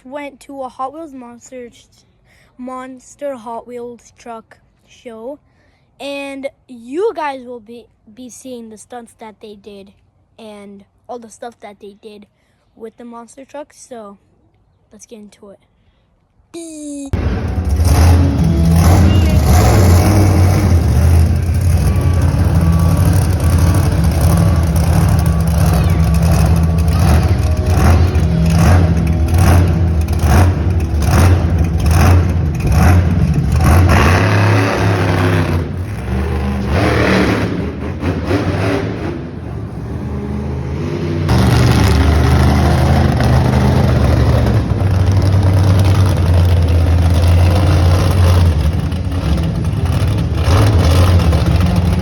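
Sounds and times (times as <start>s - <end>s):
truck engine revving: 17.2s - 52.0s.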